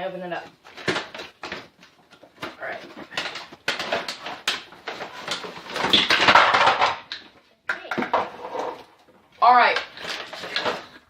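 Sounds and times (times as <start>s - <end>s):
cardboard packaging rustling: 0.6s - 7.4s, 9.9s - 11.0s.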